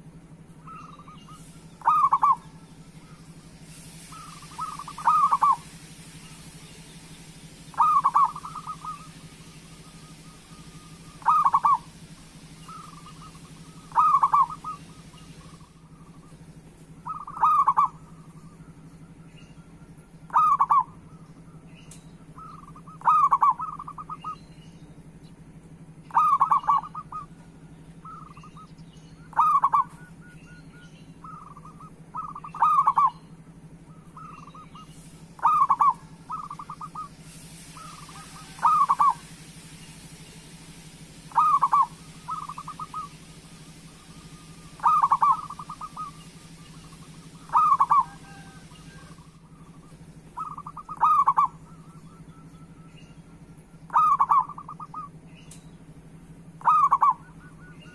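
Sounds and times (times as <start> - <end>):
steady low hum: 0.0 - 57.9
dove cooing: 0.6 - 3.2, 3.9 - 6.5, 7.7 - 19.2, 20.3 - 21.7, 22.3 - 24.4, 26.1 - 28.7, 29.3 - 30.6, 31.2 - 33.2, 33.9 - 40.1, 41.1 - 52.9, 53.9 - 55.2, 56.5 - 57.9
hiss: 1.2 - 2.0, 2.7 - 15.8, 34.8 - 49.4.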